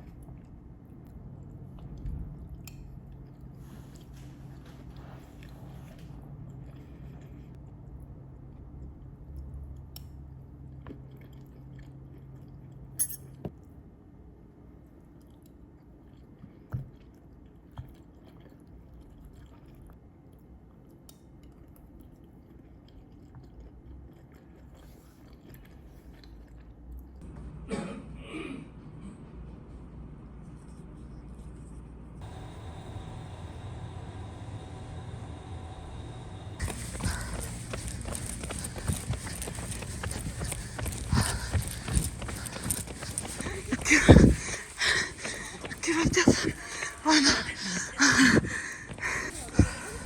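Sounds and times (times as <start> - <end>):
faint chewing: 0.0 - 13.0, 14.8 - 27.2, 36.6 - 50.0
low steady hum: 27.0 - 50.0.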